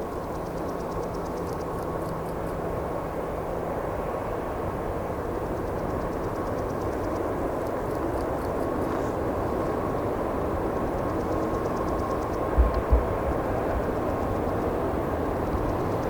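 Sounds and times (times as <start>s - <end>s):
freight train wheels rumbling: 0.0s - 16.0s
low hum: 12.0s - 16.0s.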